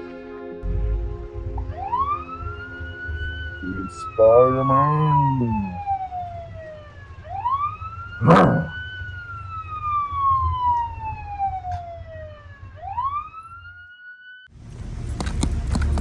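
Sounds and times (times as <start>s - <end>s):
low rumble: 0.6s - 3.9s
police siren wailing: 1.6s - 14.5s.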